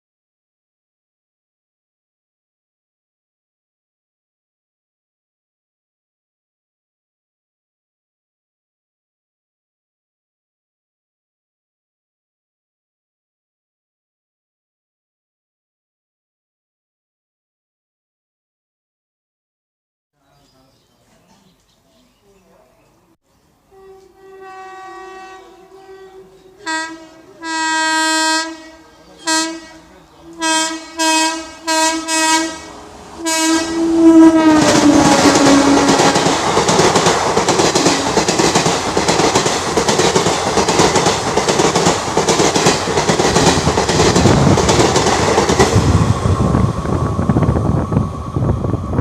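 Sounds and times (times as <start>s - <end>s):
locomotive horn: 23.7s - 36.3s
train passing with wheel clatter: 23.9s - 49.0s.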